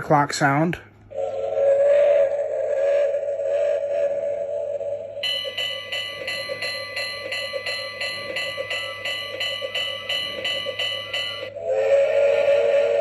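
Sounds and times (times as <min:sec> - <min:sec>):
locomotive bell clanging from speaker: 0:05.2 - 0:11.6.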